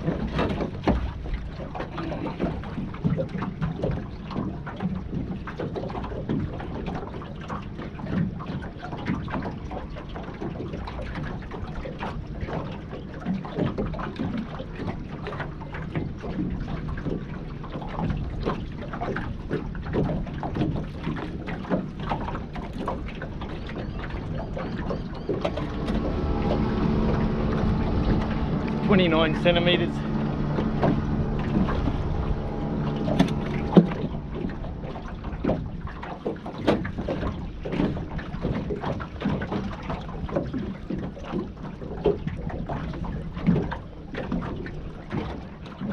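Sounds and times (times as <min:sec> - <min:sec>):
wind buffeting microphone: 0:13.6 - 0:45.5
engine hum: 0:14.1 - 0:42.1
low rumble: 0:25.3 - 0:38.0.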